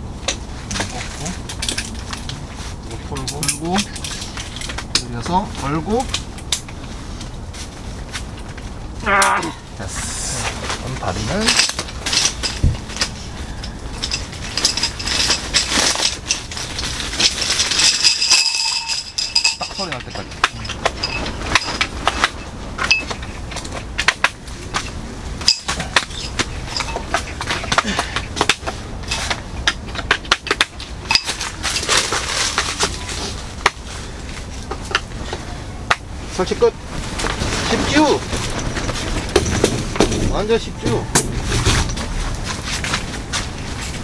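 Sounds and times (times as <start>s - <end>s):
rustle: 0.0s - 44.0s
folding cot frame clicks and rattles: 10.7s - 33.8s.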